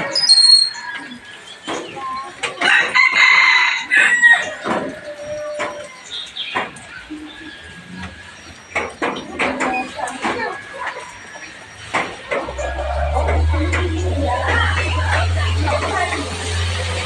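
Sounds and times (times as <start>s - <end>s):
harsh drawn-out bird call: 0.0s - 1.2s
bird chirps: 0.0s - 2.3s.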